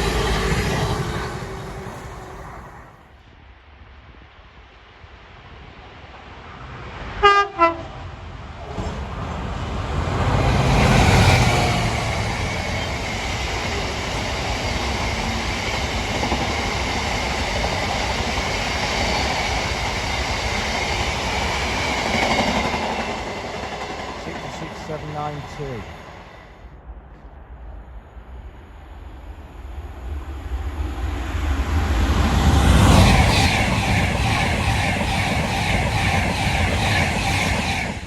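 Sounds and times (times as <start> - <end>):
train passing: 0.0 - 38.0
train horn blasts: 7.2 - 8.1.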